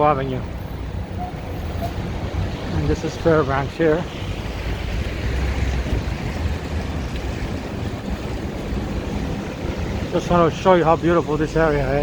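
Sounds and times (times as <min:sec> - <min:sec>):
city street traffic rumble: 0:00.0 - 0:12.0
wind on microphone: 0:04.2 - 0:10.2.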